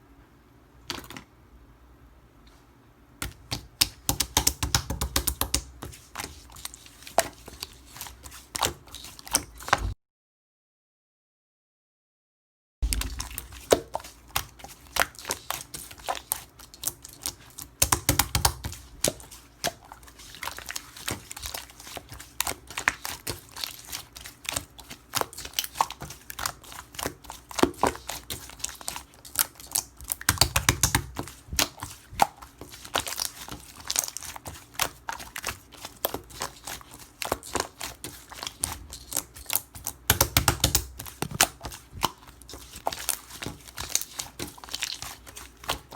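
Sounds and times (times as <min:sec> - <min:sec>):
slime squishing: 0:03.2 - 0:10.0, 0:12.8 - 0:45.9
slime clicking and popping: 0:39.1 - 0:42.1.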